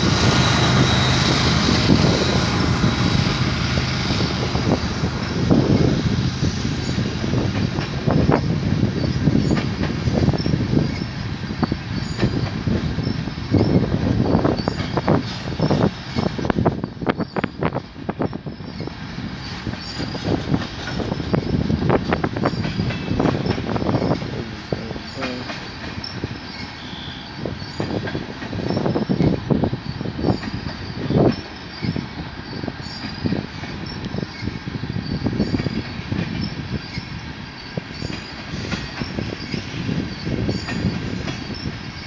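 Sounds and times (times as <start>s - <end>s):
train rumble: 0.0s - 42.0s
wheels clacking over rail joints: 6.7s - 42.0s
faint wheel squeal: 24.8s - 28.0s.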